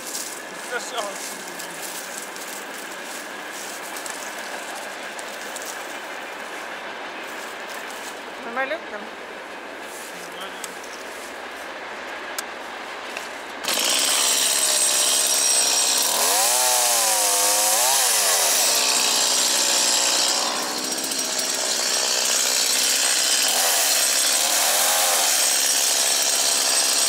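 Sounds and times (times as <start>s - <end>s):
chainsaw cutting wood: 13.6s - 27.0s.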